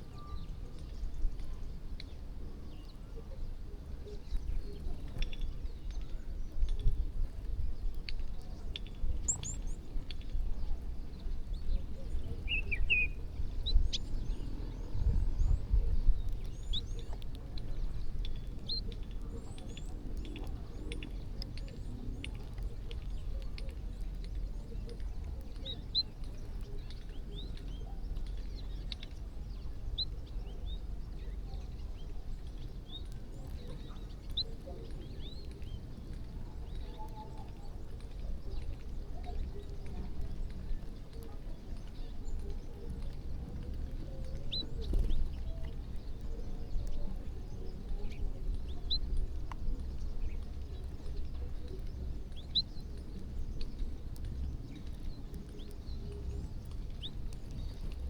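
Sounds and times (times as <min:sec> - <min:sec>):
small birds chirping: 0:00.0 - 0:58.0
steady low rumble: 0:12.7 - 0:21.5.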